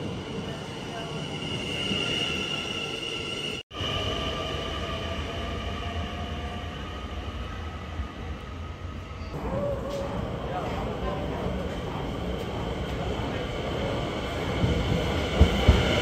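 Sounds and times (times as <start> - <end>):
train running on rails: 0.0 - 16.0.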